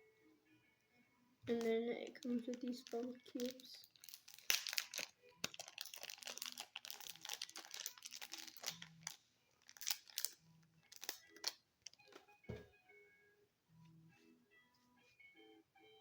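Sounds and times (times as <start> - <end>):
plastic packaging crinkling: 1.5 - 12.0.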